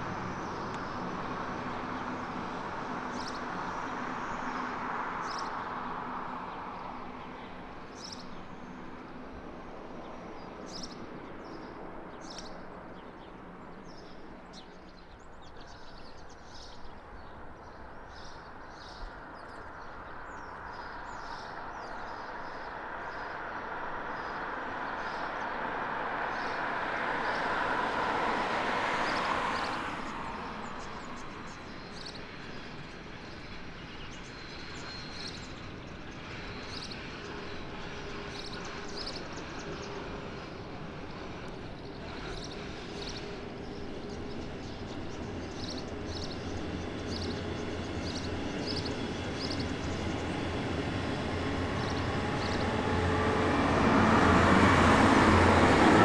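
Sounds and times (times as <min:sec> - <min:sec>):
passing vehicle: 0:00.0 - 0:14.2, 0:18.0 - 0:33.8, 0:36.6 - 0:56.0
electric train rolling rumble: 0:00.0 - 0:56.0.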